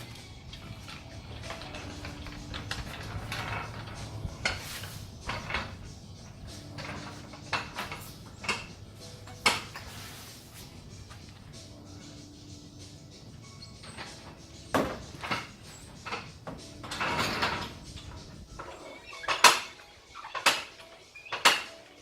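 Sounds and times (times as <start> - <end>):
metal clanks and knocks: 0.0 - 21.9.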